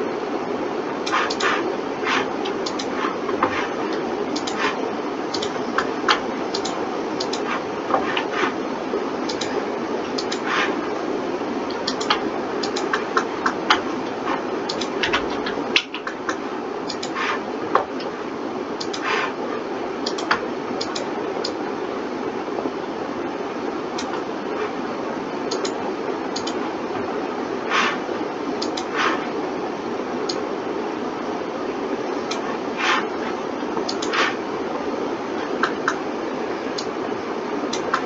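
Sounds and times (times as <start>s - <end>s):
mouse and keyboard clicks: 1.1s - 8.5s, 9.3s - 9.5s, 10.1s - 10.7s, 11.8s - 13.8s, 14.7s - 17.4s, 28.6s - 29.2s, 33.8s - 34.4s.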